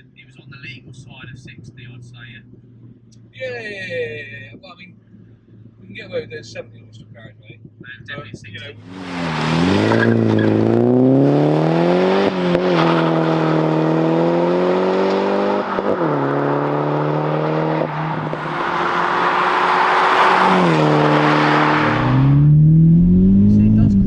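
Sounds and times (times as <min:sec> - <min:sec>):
car engine under throttle: 0:08.8 - 0:24.0.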